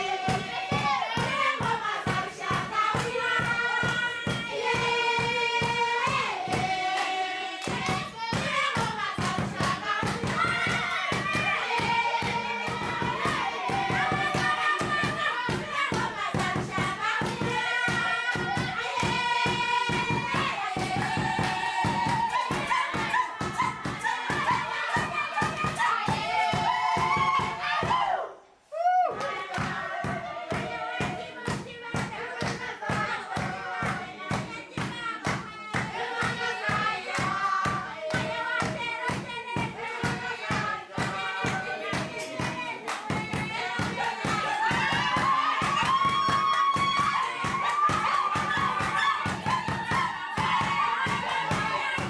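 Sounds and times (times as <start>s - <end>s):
steady beat: 0.0s - 27.6s
group singing in harmony: 0.0s - 52.0s.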